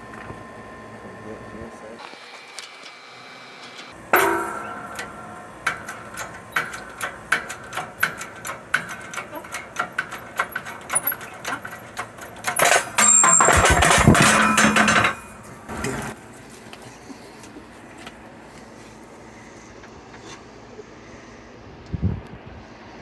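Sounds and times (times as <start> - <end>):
sharp metal clank: 4.1 - 15.8
dense metal clatter: 4.1 - 16.2
metal ticks and clinks: 4.2 - 15.5.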